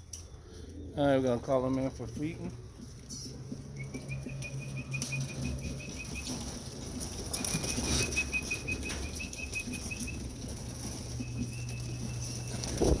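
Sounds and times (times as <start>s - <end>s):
pigeon wings flapping: 3.8s - 13.0s.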